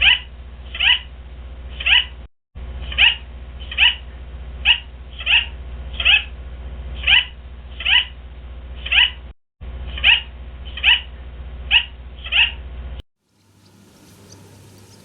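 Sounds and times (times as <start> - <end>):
small animal crying: 0.0 - 1.1, 1.8 - 2.1, 2.9 - 4.0, 7.0 - 8.1
low hum: 0.0 - 15.0.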